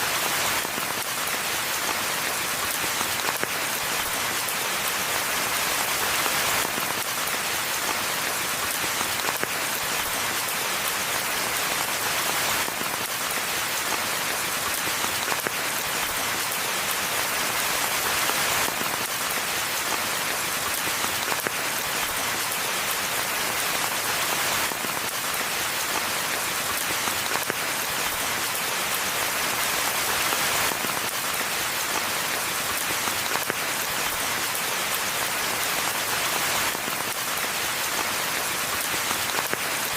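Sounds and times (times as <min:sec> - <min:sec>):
steady rainfall in forest: 0:00.0 - 0:39.9.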